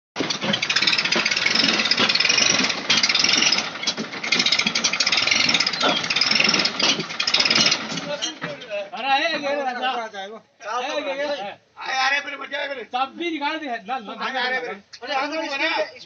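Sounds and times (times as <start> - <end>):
tractor engine rattling knock: 0.2 - 8.7.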